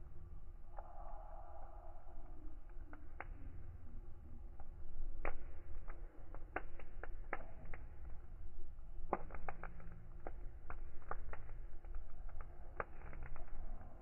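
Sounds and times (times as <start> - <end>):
low rumble of flames: 0.0 - 14.0
fire pops: 2.1 - 14.0.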